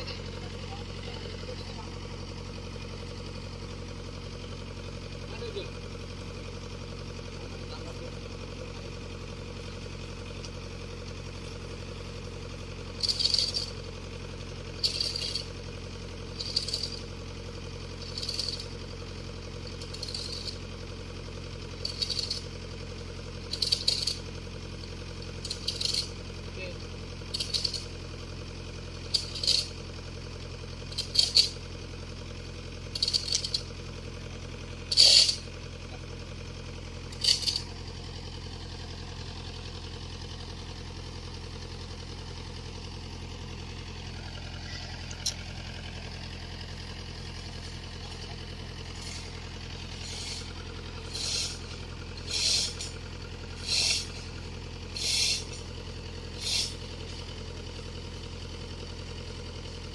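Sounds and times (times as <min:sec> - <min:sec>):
excavator diesel engine running: 0:00.0 - 0:59.9
loud metallic rattles: 0:12.9 - 0:14.1, 0:14.7 - 0:17.2, 0:17.9 - 0:22.8, 0:23.4 - 0:26.3, 0:27.2 - 0:28.2, 0:29.0 - 0:30.0, 0:30.9 - 0:32.1, 0:32.8 - 0:35.7, 0:37.0 - 0:38.1.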